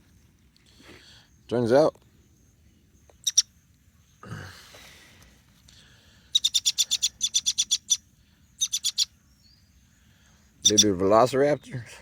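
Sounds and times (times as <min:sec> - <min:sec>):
baby bird chirping: 0:03.0 - 0:03.6, 0:06.3 - 0:09.7, 0:10.6 - 0:11.2.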